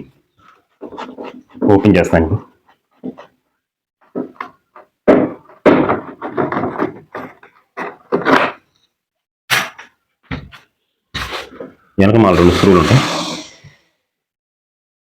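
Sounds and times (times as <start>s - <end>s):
plastic panel knocking and rattling: 4.1s - 8.6s
sharp scrape: 12.2s - 13.8s.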